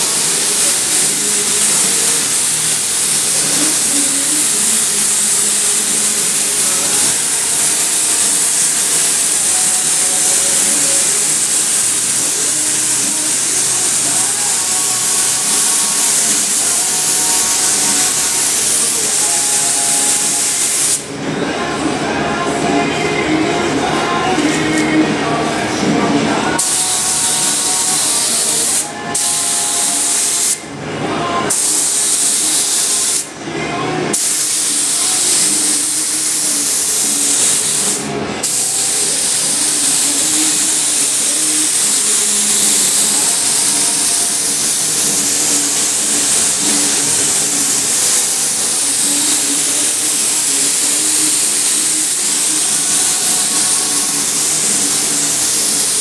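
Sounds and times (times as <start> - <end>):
spray gun hissing: 0.0 - 21.1, 26.5 - 30.6, 31.5 - 33.4, 34.1 - 56.0.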